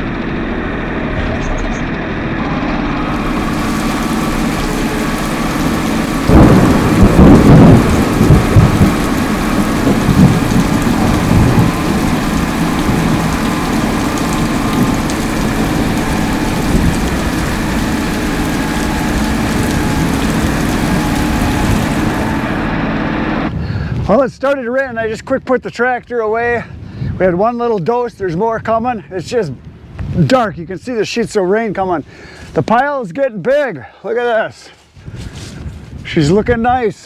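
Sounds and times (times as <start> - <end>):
steady rain: 2.9 - 22.8
thunderclap rumbling: 2.9 - 22.8.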